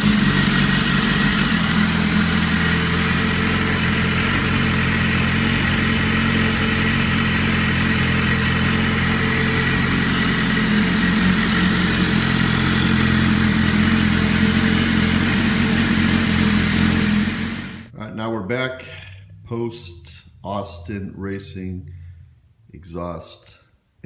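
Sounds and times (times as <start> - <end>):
motorcycle engine idling: 0.0 - 17.9.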